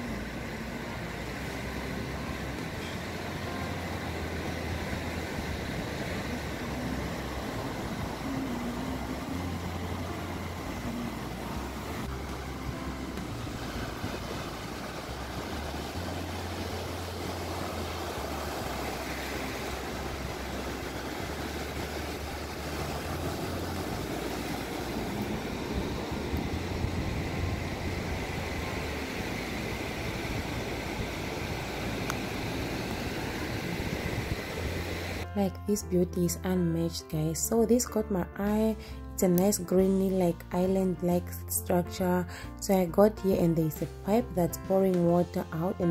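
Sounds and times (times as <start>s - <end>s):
ocean surf washing on beach: 0.0s - 35.3s
low rumble of waves: 0.0s - 45.9s.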